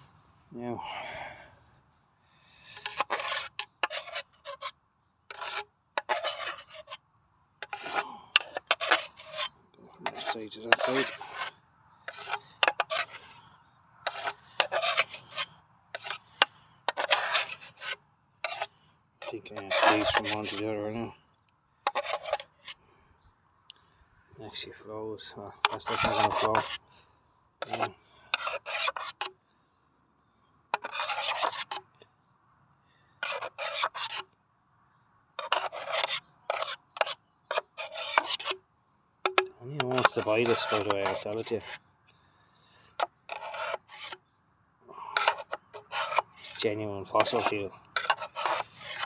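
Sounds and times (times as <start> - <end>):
tool scraping through sludge: 2.8 - 4.7, 5.3 - 7.0, 7.6 - 13.4, 14.0 - 16.2, 16.9 - 20.8, 21.8 - 22.8, 25.6 - 26.8, 27.6 - 29.3, 30.8 - 31.9, 33.2 - 34.2, 35.4 - 38.6, 39.3 - 41.8, 43.0 - 44.2, 45.1 - 49.0.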